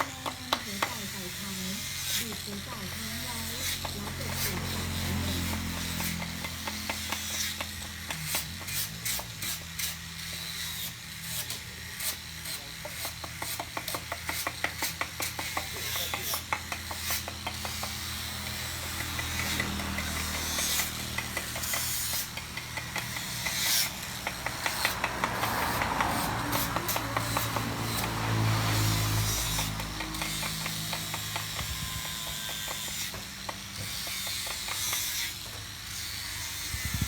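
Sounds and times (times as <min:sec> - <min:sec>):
clicking and scraping on wood: 0:00.0 - 0:37.0.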